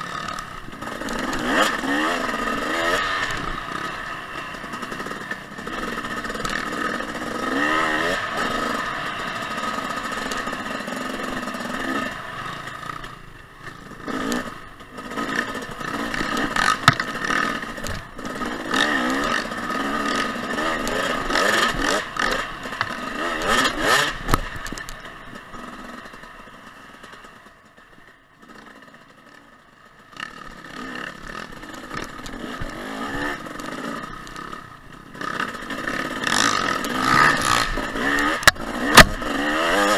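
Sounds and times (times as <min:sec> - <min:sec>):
dirt bike engine revving: 0:00.0 - 0:27.4, 0:28.4 - 0:39.9
sharp knocks: 0:16.8 - 0:17.1.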